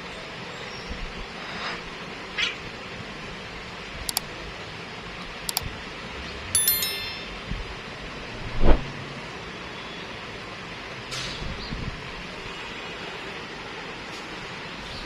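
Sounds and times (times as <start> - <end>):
brief high ringing chime: 6.6 - 7.6.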